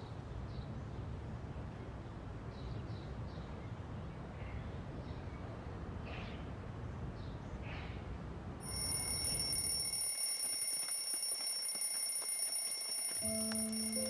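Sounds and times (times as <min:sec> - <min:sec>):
high steady ringing tone: 0:08.6 - 0:14.0.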